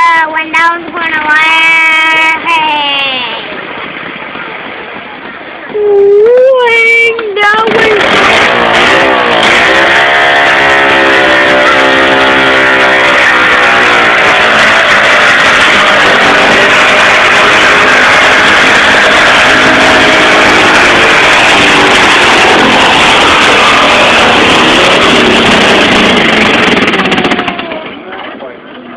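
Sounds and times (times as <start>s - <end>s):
tractor engine at full throttle: 6.9s - 28.9s.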